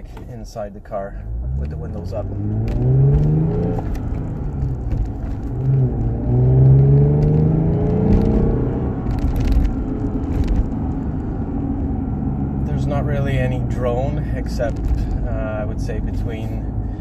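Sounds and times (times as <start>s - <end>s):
car engine rumble from inside cabin: 0.0s - 17.0s.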